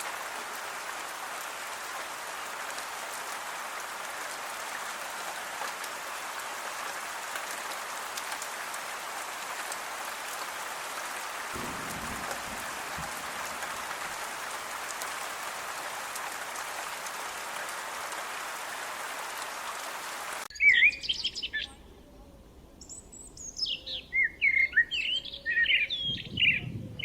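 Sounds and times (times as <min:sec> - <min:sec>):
rain pattering on leaves: 0:00.0 - 0:20.5.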